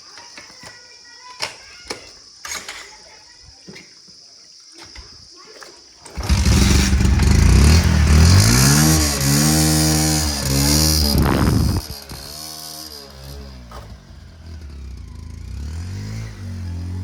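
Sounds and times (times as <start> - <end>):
diesel engine revving: 6.2 - 17.0.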